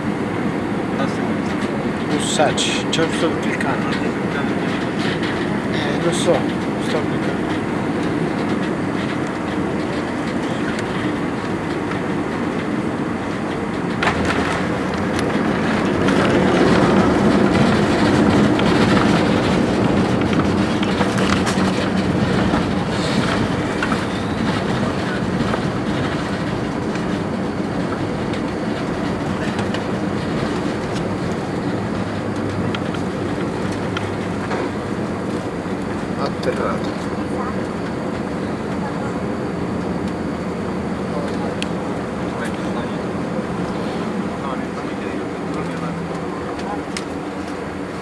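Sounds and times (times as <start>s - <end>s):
airliner cabin rumble: 0.0s - 48.0s
jet engines reverse thrust roar: 0.0s - 48.0s.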